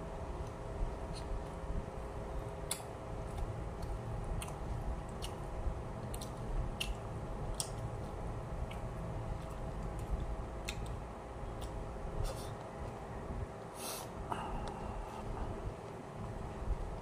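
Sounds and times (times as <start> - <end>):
steady background hum: 0.0 - 17.0
person chewing food: 0.3 - 13.0.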